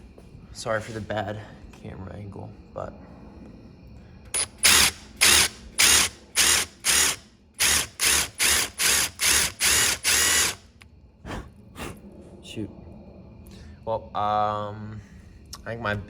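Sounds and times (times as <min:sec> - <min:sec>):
impact driver drilling bursts: 0:04.4 - 0:10.6.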